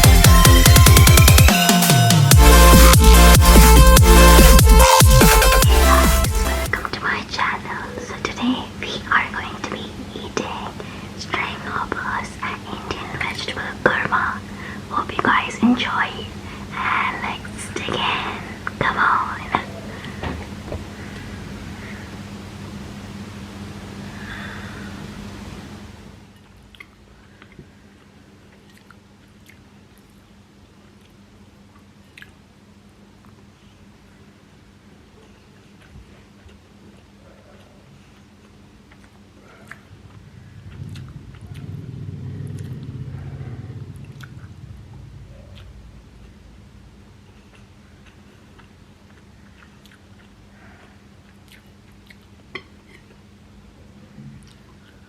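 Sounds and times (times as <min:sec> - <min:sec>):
faint low hum: 0:06.7 - 0:55.0
soft close-up chewing: 0:26.3 - 0:32.4, 0:35.2 - 0:46.6, 0:47.2 - 0:53.3, 0:54.3 - 0:55.0
mouth clicks: 0:38.9 - 0:41.8, 0:42.4 - 0:44.5, 0:45.3 - 0:46.4.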